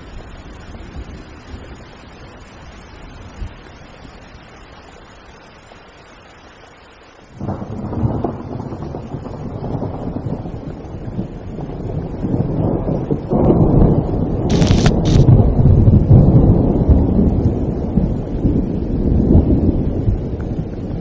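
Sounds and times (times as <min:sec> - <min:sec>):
rain hiss: 0:00.0 - 0:12.6, 0:14.4 - 0:15.4
thunder rumbling: 0:11.6 - 0:20.9.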